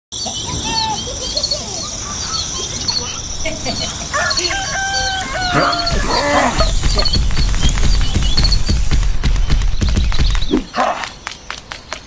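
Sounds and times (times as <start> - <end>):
birds chirping: 0.1 - 12.0
steady high hiss: 0.2 - 11.8
rooster crowing: 3.7 - 7.1.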